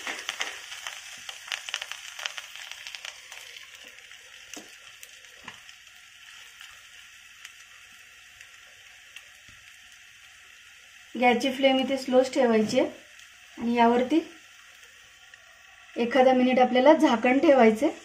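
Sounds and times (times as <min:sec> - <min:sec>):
dough sizzling in hot oil: 0:00.0 - 0:18.0.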